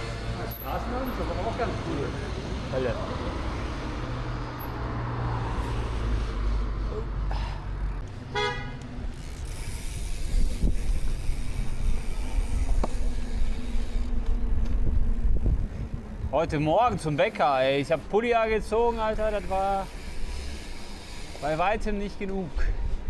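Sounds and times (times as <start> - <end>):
road traffic rumble: 0.0 - 23.0
vehicle horn toot: 8.3 - 8.8.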